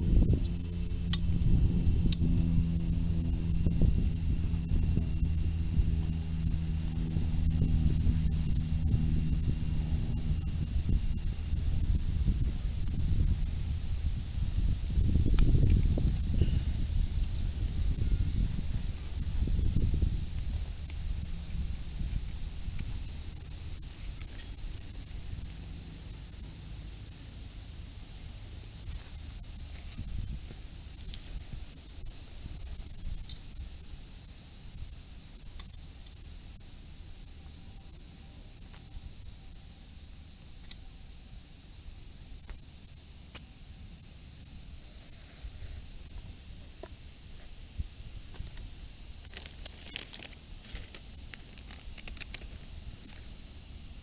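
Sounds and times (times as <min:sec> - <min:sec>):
low rumble: 0:00.0 - 0:25.5
insects chorus: 0:00.0 - 0:54.0.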